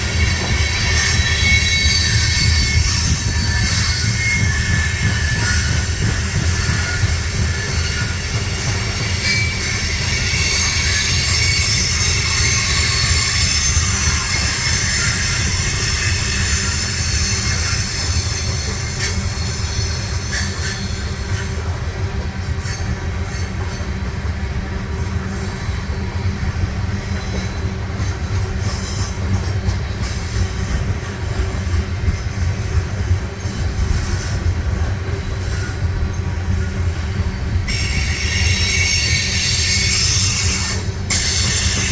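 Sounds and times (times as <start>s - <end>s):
high-pitched wheel squeal: 0.0s - 21.5s, 37.6s - 41.9s
freight train rumbling on rails: 0.0s - 41.9s.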